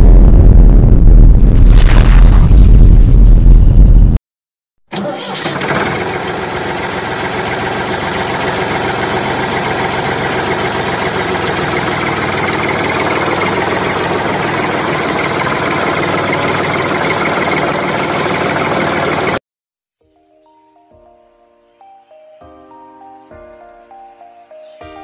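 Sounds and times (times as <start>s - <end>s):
diesel tractor engine idling: 4.9s - 19.4s.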